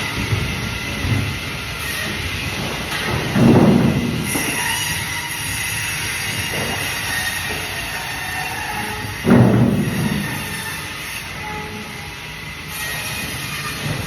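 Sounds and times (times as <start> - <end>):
band saw cutting fish: 3.6 - 14.0.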